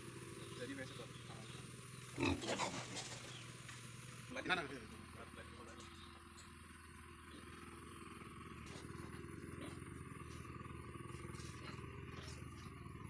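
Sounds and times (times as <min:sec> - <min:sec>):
pigs grunting: 0:02.0 - 0:03.4, 0:08.6 - 0:12.7.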